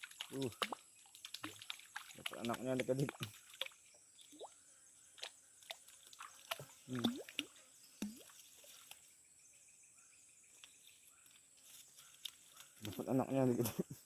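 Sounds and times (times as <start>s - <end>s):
water dripping and plopping: 0.0s - 9.0s.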